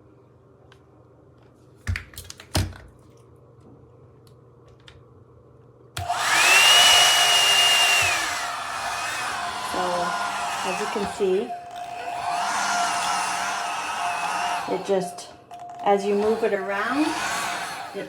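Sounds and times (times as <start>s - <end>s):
hot air brush blower whining: 6.0s - 18.0s.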